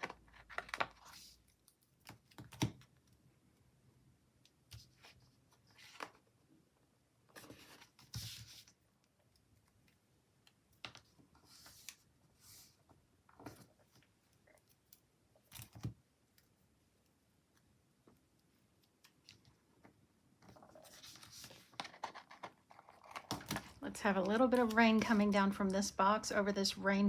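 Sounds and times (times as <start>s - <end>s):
paper sticker sheets rustling: 20.5s - 25.7s.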